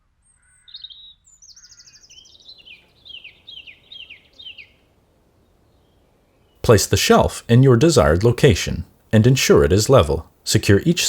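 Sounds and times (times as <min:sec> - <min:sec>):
songbird singing: 0:00.2 - 0:08.3.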